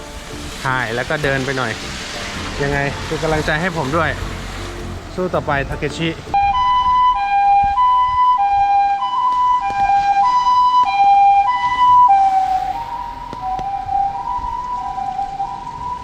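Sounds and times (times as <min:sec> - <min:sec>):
ambulance siren two-tone call: 0:06.4 - 0:16.0.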